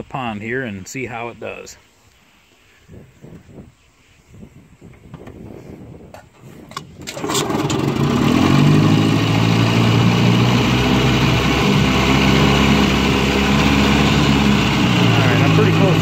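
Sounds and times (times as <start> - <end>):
outboard engine idling: 7.1 - 16.0.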